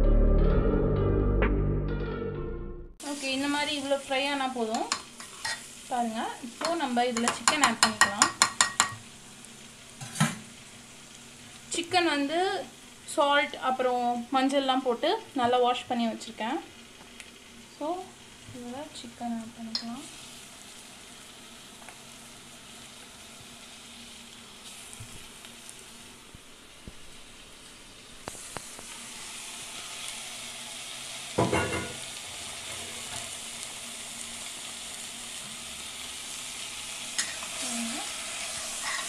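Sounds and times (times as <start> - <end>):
food sizzling in hot oil: 3.0 - 39.0.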